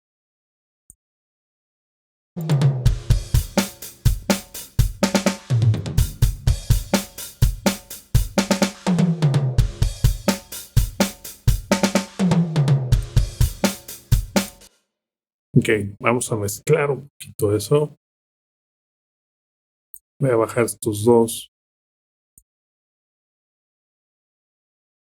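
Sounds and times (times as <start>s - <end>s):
snare drum: 2.4s - 14.7s
kick drum: 2.8s - 8.5s, 9.6s - 12.0s, 12.9s - 14.5s
cymbals: 2.9s - 8.8s, 13.0s - 14.7s
hi-hat: 3.0s - 8.8s, 9.8s - 12.2s, 13.0s - 14.7s.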